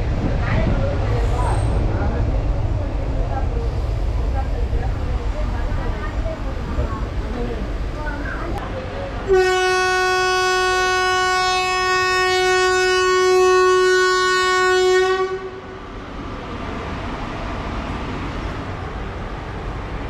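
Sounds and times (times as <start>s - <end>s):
train rumbling: 0.0s - 20.0s
train horn blast: 9.3s - 15.8s.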